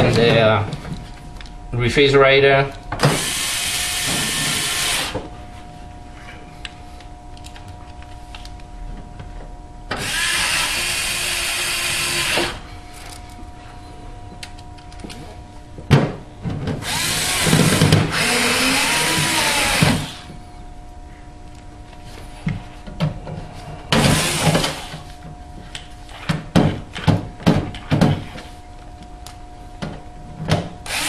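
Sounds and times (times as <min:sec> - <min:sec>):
faint steady hum: 0:00.0 - 0:31.0
power drill driving screws: 0:03.0 - 0:05.2, 0:10.0 - 0:12.6, 0:16.8 - 0:20.2, 0:24.0 - 0:25.0.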